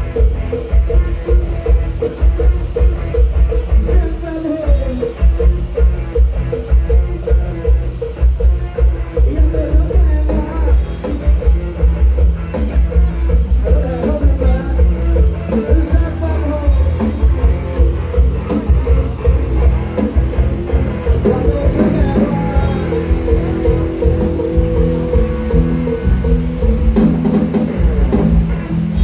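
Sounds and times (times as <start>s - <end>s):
live band music: 0.0s - 29.0s
pounding bass and drum beat: 0.0s - 29.0s
person singing: 3.7s - 5.6s, 9.2s - 11.6s, 13.6s - 19.3s, 21.0s - 26.4s.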